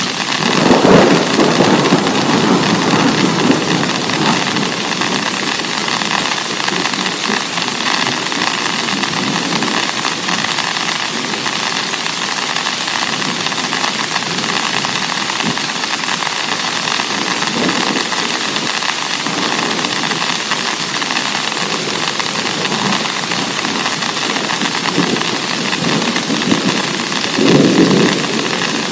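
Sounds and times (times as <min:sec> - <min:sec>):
heavy rain pouring: 0:00.0 - 0:28.9.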